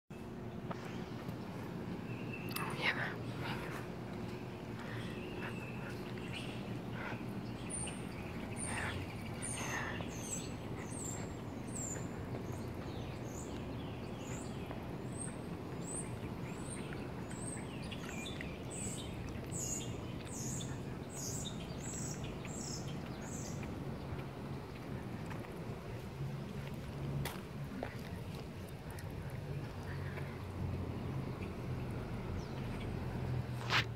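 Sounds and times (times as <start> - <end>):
bird chirping: 0.1 - 26.8
low background hum: 0.1 - 33.9.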